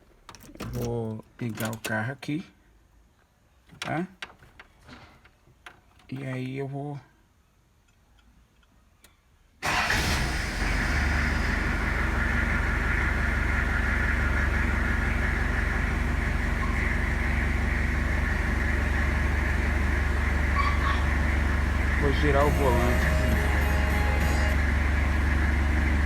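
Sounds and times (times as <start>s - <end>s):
engine starting and idling: 9.6s - 26.0s.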